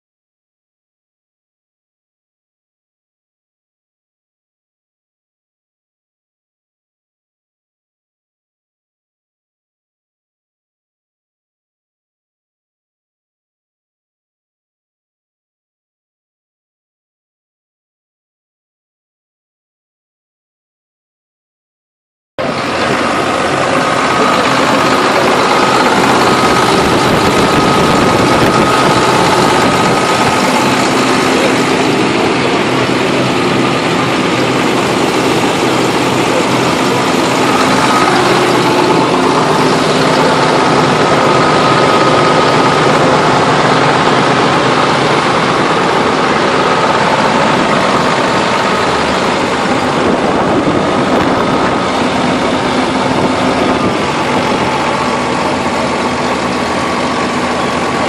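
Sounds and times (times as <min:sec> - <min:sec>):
large engine idling: 0:22.4 - 0:58.0.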